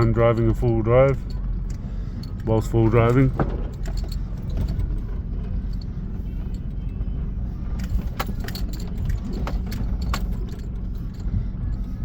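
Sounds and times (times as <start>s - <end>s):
vehicle low rumble: 0.0s - 12.0s
knocks and rattles from bumps: 2.3s - 5.6s, 7.8s - 11.2s.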